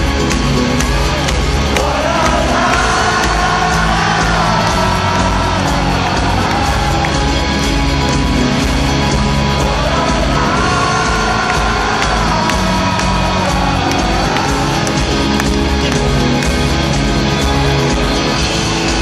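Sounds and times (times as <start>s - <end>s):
rock band playing live: 0.0s - 19.0s
person singing: 1.1s - 7.9s, 9.3s - 16.0s.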